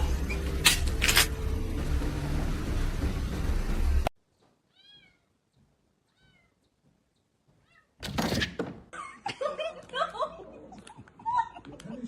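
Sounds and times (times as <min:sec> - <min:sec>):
cat meowing: 0:04.7 - 0:05.4, 0:06.1 - 0:06.7, 0:07.6 - 0:08.0.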